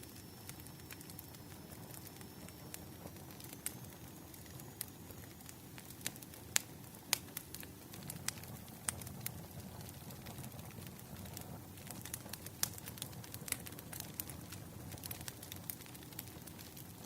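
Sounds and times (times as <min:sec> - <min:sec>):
firewood crackling and popping: 0:00.0 - 0:17.0.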